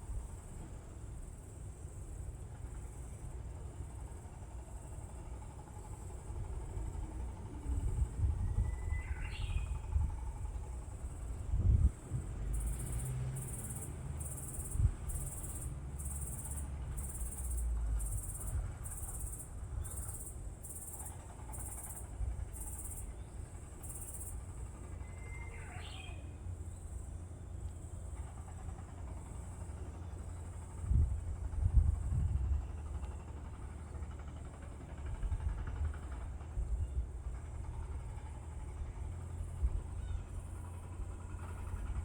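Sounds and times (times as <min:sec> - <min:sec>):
insect high-pitched pulsing call: 0:08.0 - 0:10.9, 0:12.5 - 0:27.0.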